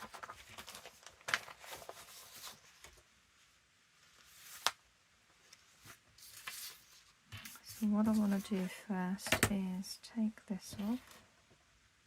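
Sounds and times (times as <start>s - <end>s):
paper rustling: 0.0s - 3.1s, 4.0s - 4.8s, 5.4s - 9.5s.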